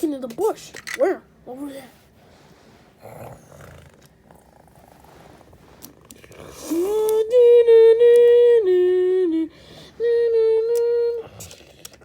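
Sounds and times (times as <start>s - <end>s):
person humming long notes: 6.6s - 11.5s.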